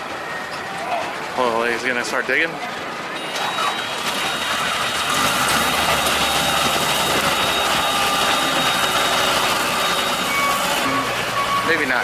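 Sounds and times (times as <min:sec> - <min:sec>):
excavator engine rumbling: 0:02.8 - 0:12.0.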